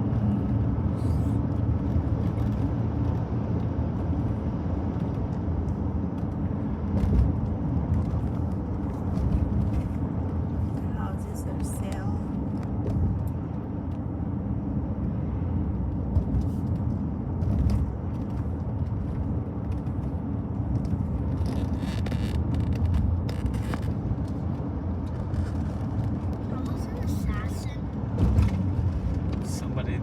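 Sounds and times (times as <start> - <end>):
car cabin road rumble: 0.0 - 30.0.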